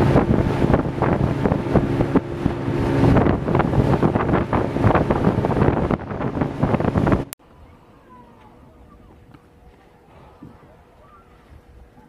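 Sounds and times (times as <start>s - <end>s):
wind buffeting microphone: 0.0s - 7.8s, 8.6s - 12.0s
boat motor running: 0.0s - 12.0s
waves against hull: 0.0s - 12.0s.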